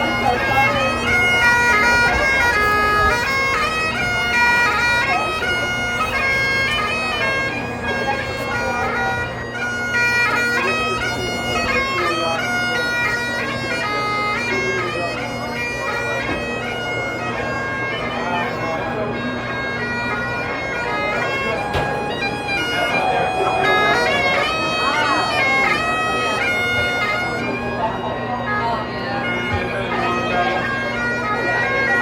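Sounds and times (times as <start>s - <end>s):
bagpipe drone: 0.0s - 32.0s
bagpipes melody: 0.0s - 32.0s.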